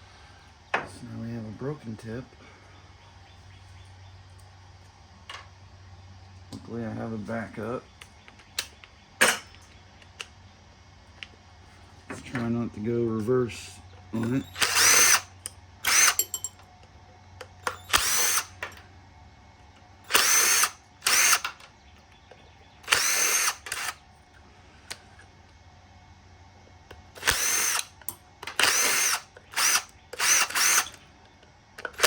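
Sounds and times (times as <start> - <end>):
power drill whining: 14.2 - 16.5, 17.6 - 18.6, 20.1 - 21.6, 22.8 - 24.0, 27.1 - 31.0, 31.8 - 32.0.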